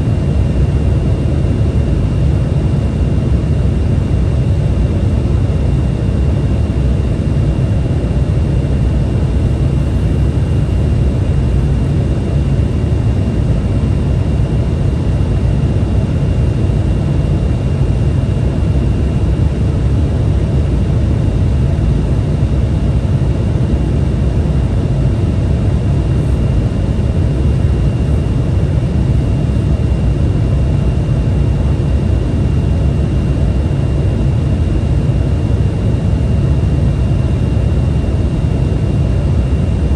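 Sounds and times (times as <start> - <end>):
high whine: 0.0 - 16.8, 22.2 - 35.9
jet cabin engine rumble: 0.0 - 39.9.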